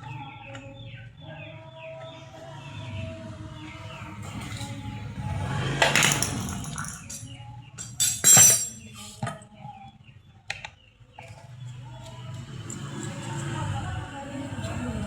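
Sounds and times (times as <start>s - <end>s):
hard parts clinking: 5.8s - 9.0s.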